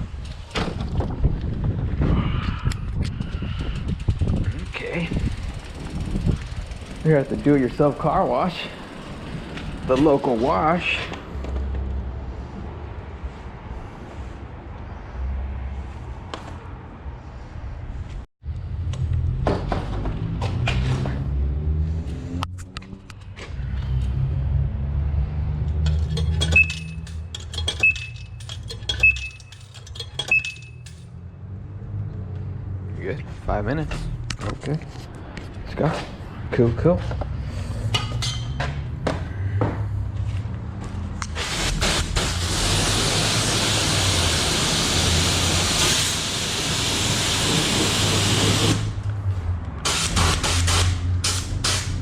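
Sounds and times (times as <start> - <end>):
coins clinking into coin box: 25.9 - 31.1
short electronic beep: 26.5 - 27.0, 27.8 - 28.4, 29.0 - 29.5, 30.2 - 30.9
pressure washer spraying water: 41.4 - 49.0, 49.9 - 52.0.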